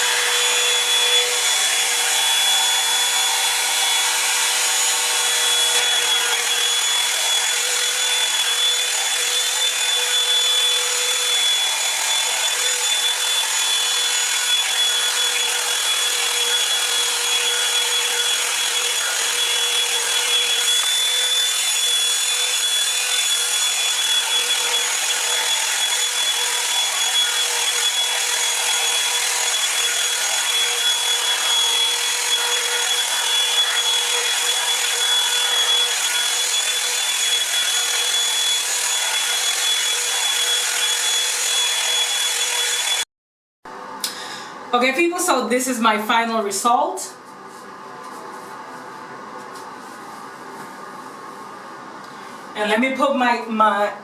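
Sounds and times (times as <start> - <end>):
hot-air brush dryer running: 0.0 - 43.1.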